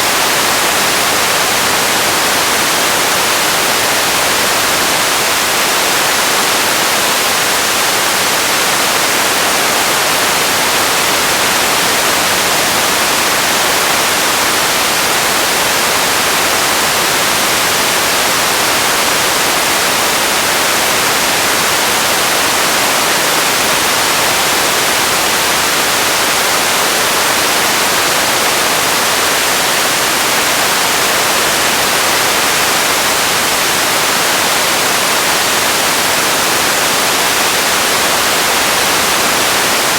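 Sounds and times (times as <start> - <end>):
radio static hiss: 0.0 - 39.9.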